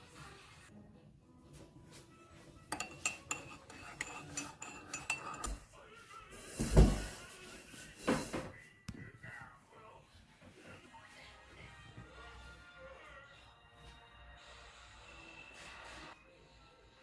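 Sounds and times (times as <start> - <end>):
cutlery and dishes clinking: 2.7 - 5.7, 6.4 - 8.5.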